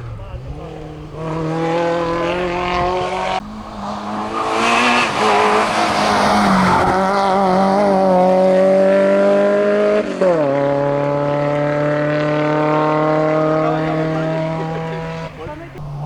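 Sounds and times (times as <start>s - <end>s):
tyre squeal: 0.0s - 7.6s
car engine at high revs: 0.0s - 16.0s.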